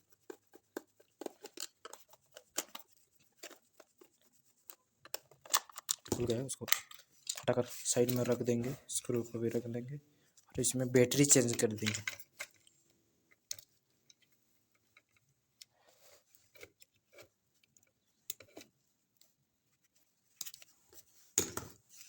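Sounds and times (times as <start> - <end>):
plastic parts clicking and rustling: 0.1 - 8.8, 11.1 - 15.7.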